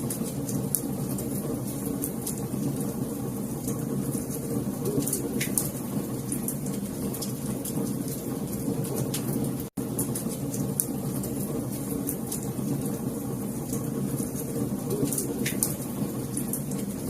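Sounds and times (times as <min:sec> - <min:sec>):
low rumble of burning fire: 0:00.0 - 0:17.0
wood fire crackling: 0:00.0 - 0:17.0.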